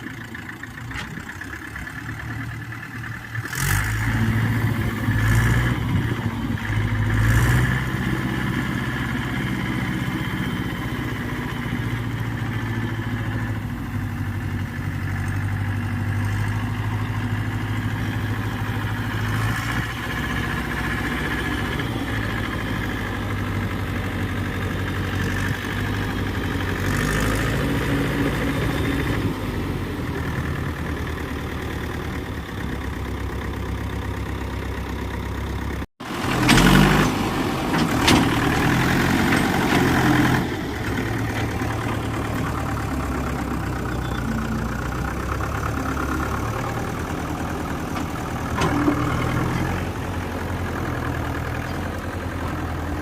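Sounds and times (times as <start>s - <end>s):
tractor diesel engine idling: 0.0s - 53.0s.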